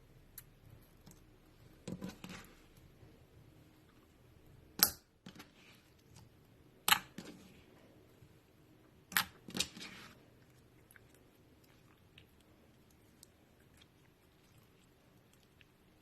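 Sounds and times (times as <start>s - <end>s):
slime squishing: 9.0s - 16.0s.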